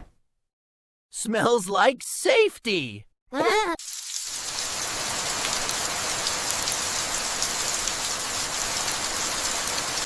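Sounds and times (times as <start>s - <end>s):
steady rain falling: 3.8s - 10.0s.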